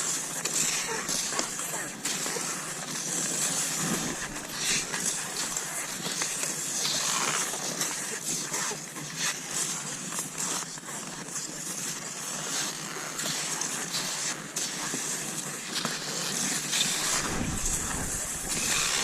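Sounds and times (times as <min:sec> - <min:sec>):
skis swishing over snow: 0:00.0 - 0:19.0
low rumble: 0:16.9 - 0:19.0.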